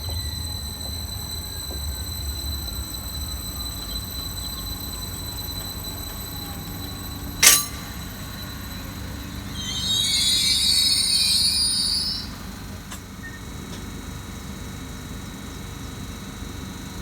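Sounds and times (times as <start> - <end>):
metallic wheel squeal: 0.0 - 13.5
faint high whine: 0.0 - 13.8
train rumbling: 0.0 - 15.7
sharp clack: 7.4 - 8.2.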